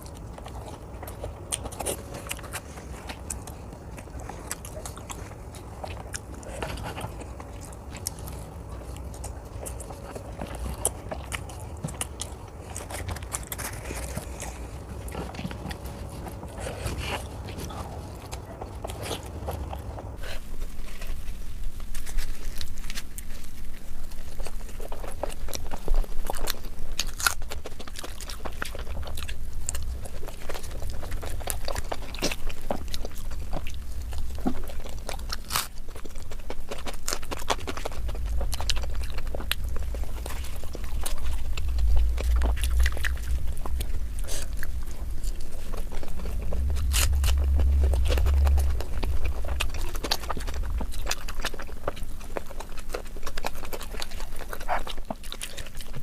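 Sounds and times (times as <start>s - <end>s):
low rumble: 0.0s - 21.3s, 28.9s - 55.1s
close chewing with wet smacking: 0.0s - 56.0s.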